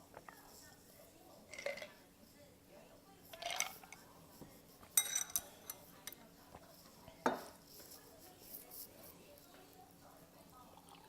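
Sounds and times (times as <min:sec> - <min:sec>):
utensils clinking against a bowl: 0:01.5 - 0:02.0, 0:03.3 - 0:04.1, 0:04.8 - 0:06.3.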